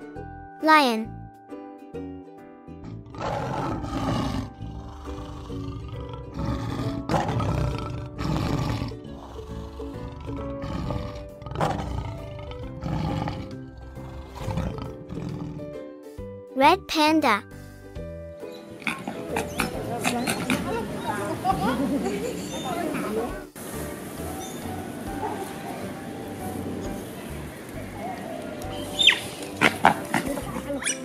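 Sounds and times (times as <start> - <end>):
light background music: 0.0 - 31.0
lion roaring: 2.8 - 15.8.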